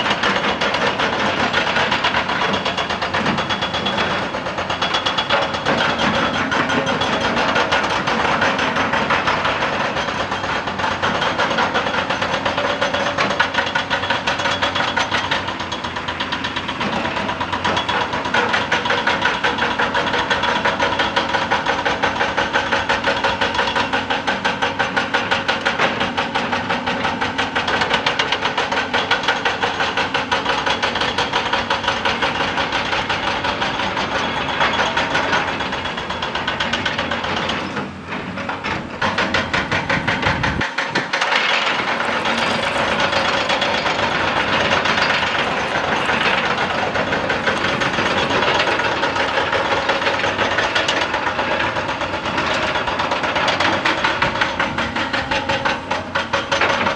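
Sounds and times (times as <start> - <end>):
diesel engine running: 0.0 - 56.9
hydraulic breaker hammering rock: 0.0 - 56.9.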